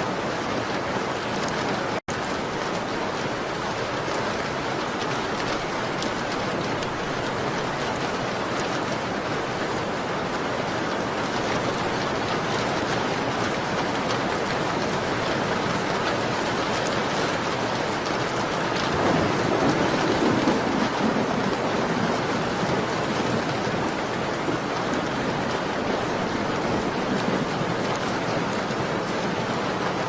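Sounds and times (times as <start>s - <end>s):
rain on a window: 0.0s - 30.0s.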